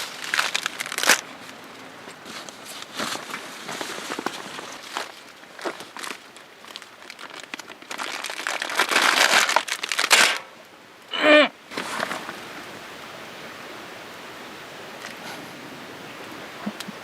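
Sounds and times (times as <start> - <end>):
crinkling and rustling handling: 0.0 - 10.5, 11.7 - 12.5.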